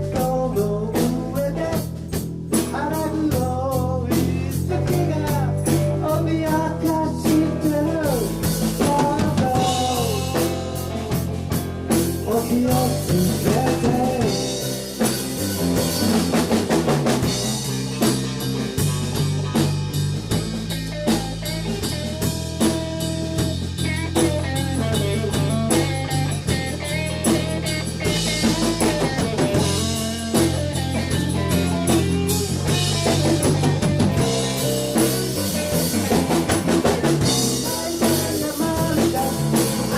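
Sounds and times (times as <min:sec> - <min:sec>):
person singing: 0:00.0 - 0:02.0, 0:02.6 - 0:14.9, 0:26.8 - 0:39.9
bass and electric guitar: 0:00.0 - 0:39.9
drum kit beat: 0:00.0 - 0:39.9.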